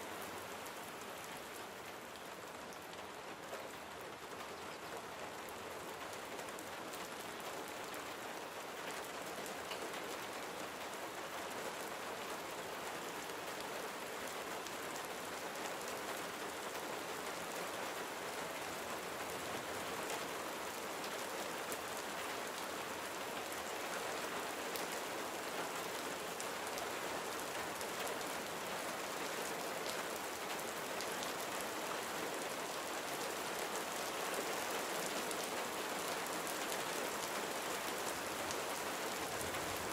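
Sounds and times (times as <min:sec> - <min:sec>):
gentle rain falling: 0:00.0 - 0:39.9.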